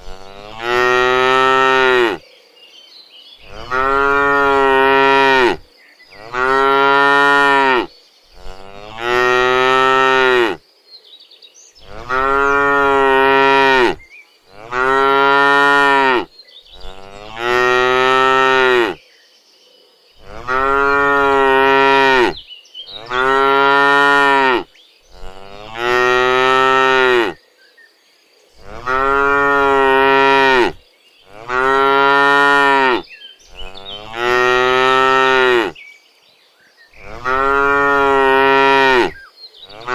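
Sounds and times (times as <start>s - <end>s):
cattle mooing: 0.0s - 2.2s, 3.5s - 5.6s, 6.2s - 10.6s, 11.8s - 19.0s, 20.2s - 22.4s, 23.0s - 24.6s, 25.2s - 27.4s, 28.6s - 33.0s, 33.6s - 35.8s, 37.0s - 39.9s.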